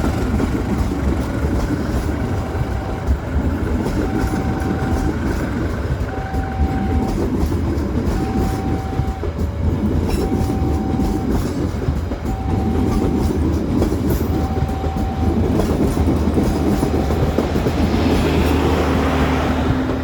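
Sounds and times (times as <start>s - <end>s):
train rumbling past: 0.0s - 20.0s
wheels clicking over rails: 0.0s - 20.0s.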